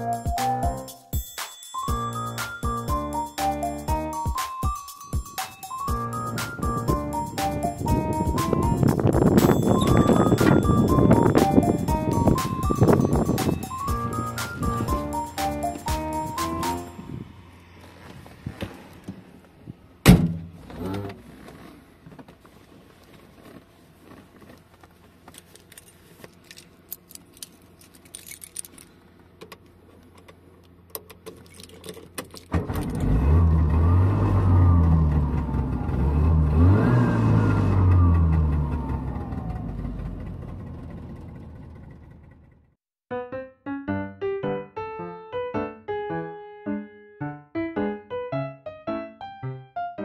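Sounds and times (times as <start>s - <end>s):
loud thunk: 20.0s - 20.6s
small car engine revving: 32.6s - 42.5s.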